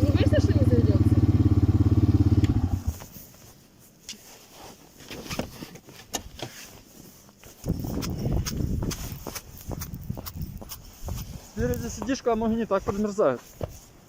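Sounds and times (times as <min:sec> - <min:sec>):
quad bike engine running: 0:00.0 - 0:03.0
wind rumble on microphone: 0:07.6 - 0:12.0.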